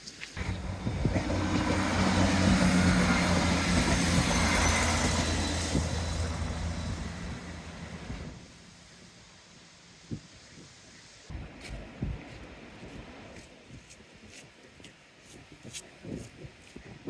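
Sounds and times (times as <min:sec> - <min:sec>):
vehicle engine passing by: 0:00.4 - 0:08.4.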